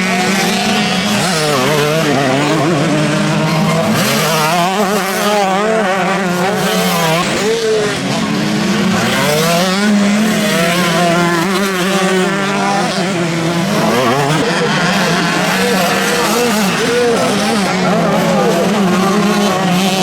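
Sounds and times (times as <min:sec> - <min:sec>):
motocross bikes revving: 0:00.0 - 0:20.0.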